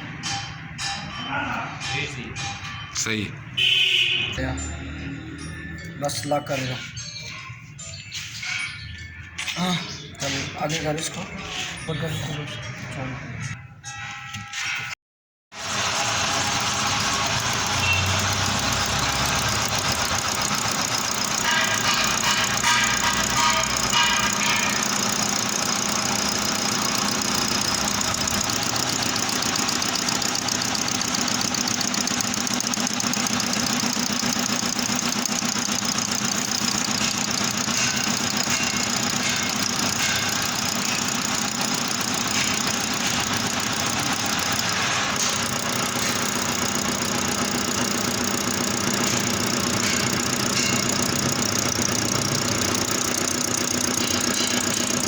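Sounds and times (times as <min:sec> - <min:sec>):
metal lathe running: 0:15.6 - 0:55.0.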